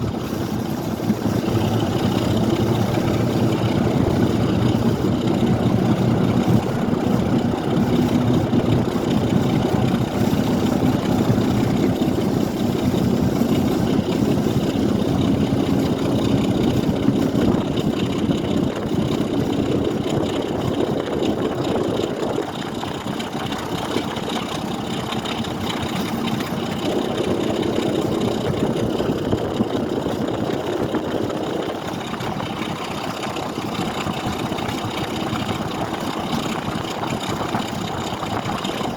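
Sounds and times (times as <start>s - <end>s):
train engine hum and rumble: 0.0s - 38.9s.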